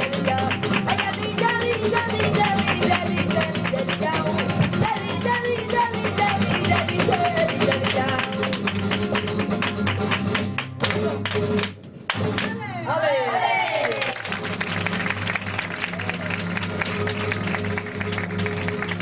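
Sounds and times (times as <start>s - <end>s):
person singing: 0.0s - 8.6s
flamenco guitar playing: 0.0s - 13.5s, 14.1s - 19.0s.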